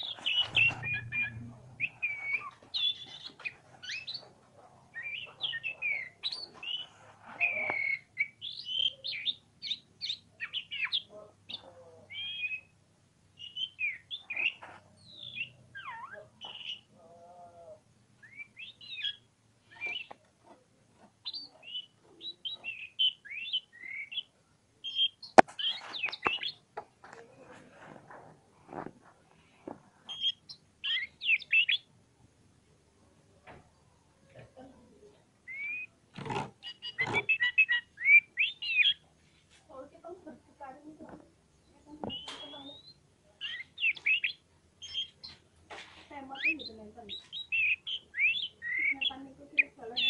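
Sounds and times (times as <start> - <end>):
songbird whistles and chirps: 0.0 - 4.3, 4.9 - 12.8, 13.4 - 16.9, 18.2 - 20.2, 21.2 - 26.6, 30.1 - 31.9, 35.4 - 36.0, 36.6 - 39.1, 41.9 - 45.4, 46.3 - 50.0.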